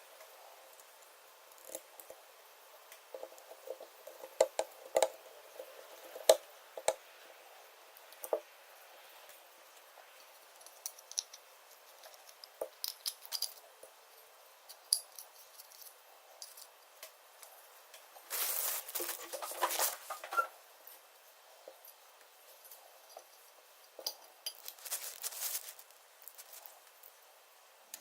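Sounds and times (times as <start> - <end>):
small hard parts clicking: 10.6 - 14.0
scraping and rustling: 18.2 - 20.6, 22.5 - 27.2.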